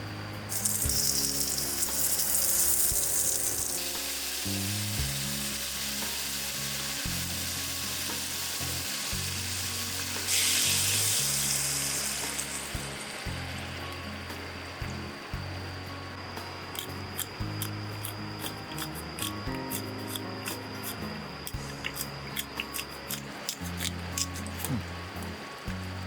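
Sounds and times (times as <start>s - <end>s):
food sizzling in hot pan: 0.5s - 15.4s.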